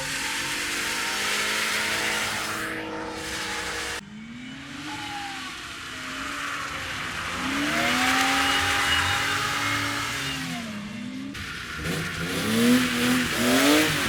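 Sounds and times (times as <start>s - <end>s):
car engine revving: 0.0s - 14.0s
tyre squeal: 2.2s - 10.8s.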